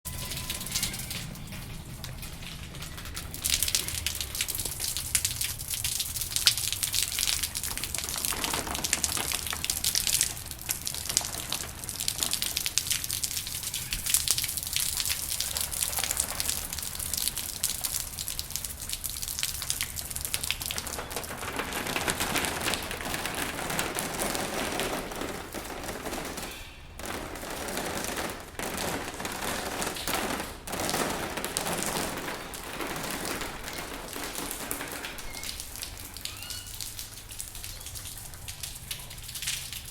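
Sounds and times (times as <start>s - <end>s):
rain patter: 0.0s - 39.9s.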